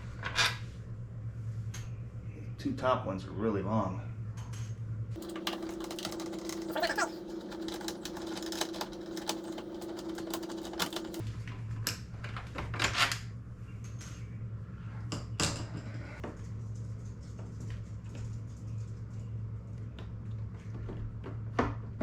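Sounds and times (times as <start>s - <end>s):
clicks and knocks of handwork: 5.2s - 11.2s.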